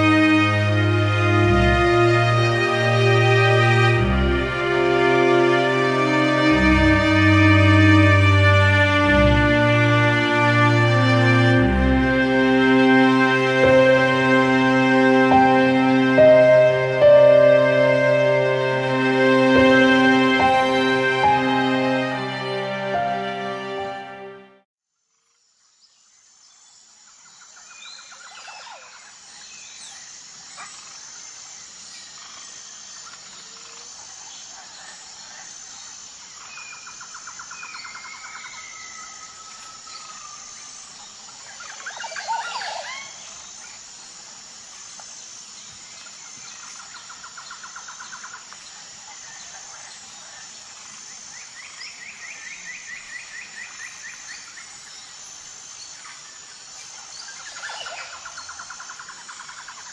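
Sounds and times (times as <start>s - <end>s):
steady high hiss: 0.0s - 24.4s, 26.0s - 59.9s.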